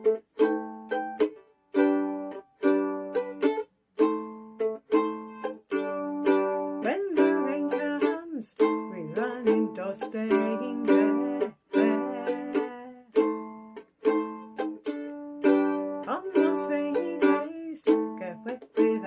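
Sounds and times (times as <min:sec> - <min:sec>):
mandolin strumming chords: 0:00.0 - 0:19.0
person singing: 0:05.7 - 0:13.5, 0:15.4 - 0:19.0.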